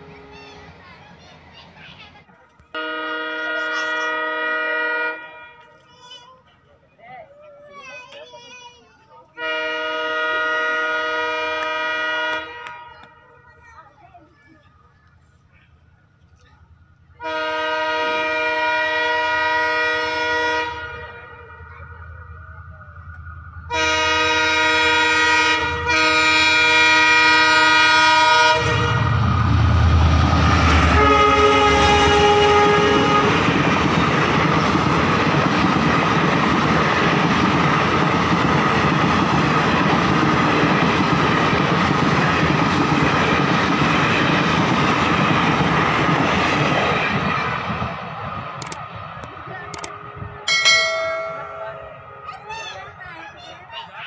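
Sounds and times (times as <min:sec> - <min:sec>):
train coaches rushing past: 0:00.0 - 0:54.0
train horn blasts: 0:02.8 - 0:05.9, 0:09.4 - 0:13.4, 0:17.2 - 0:21.7, 0:23.7 - 0:29.3, 0:30.7 - 0:33.7.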